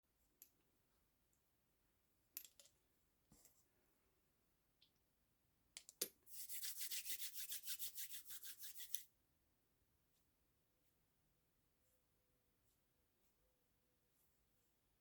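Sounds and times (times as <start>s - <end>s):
hands rubbing on skin: 6.3s - 9.0s.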